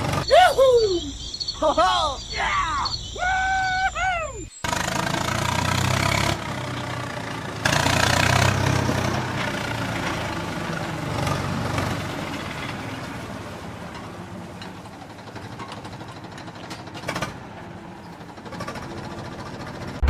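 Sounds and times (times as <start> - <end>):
mini bulldozer motor rattling: 0.0 - 0.3, 4.6 - 20.0.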